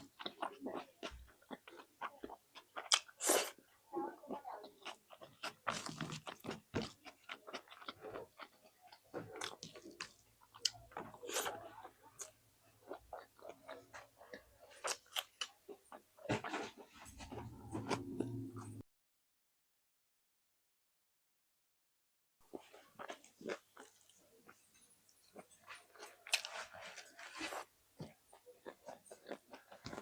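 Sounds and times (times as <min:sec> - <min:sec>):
wet chewing: 0:00.0 - 0:03.6, 0:04.2 - 0:18.7, 0:22.5 - 0:30.0
low hum: 0:17.2 - 0:18.8.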